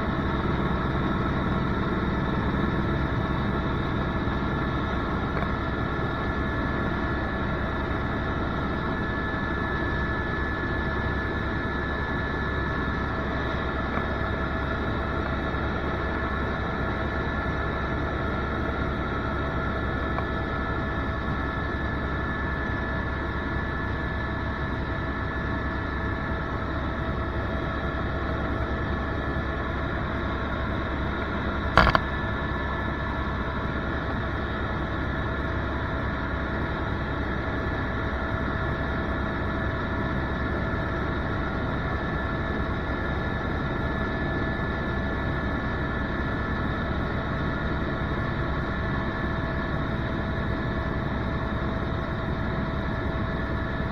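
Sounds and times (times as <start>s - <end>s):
steady high whine: 0.0s - 35.6s
helicopter engine and rotor drone: 0.0s - 53.9s
short sharp knock: 31.8s - 32.0s.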